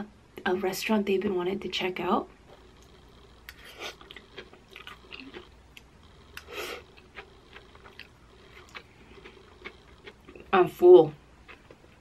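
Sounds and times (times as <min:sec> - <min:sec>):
soft chewing with mouth clicks: 0:02.5 - 0:10.6, 0:11.4 - 0:12.0.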